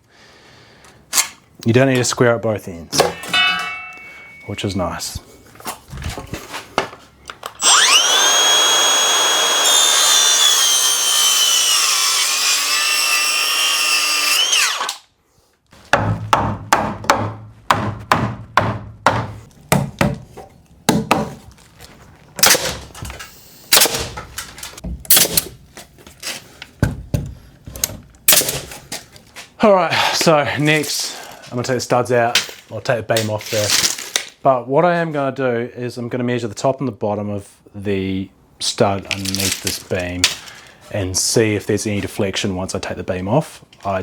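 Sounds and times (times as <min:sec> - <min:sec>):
power saw cutting timber: 0:07.6 - 0:15.0
sharp knocks on timber: 0:15.9 - 0:20.2, 0:20.9 - 0:21.4.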